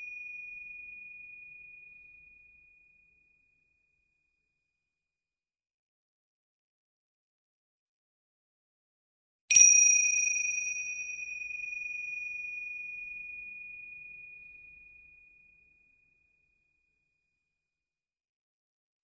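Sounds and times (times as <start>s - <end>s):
small bell ding: 9.5s - 13.6s.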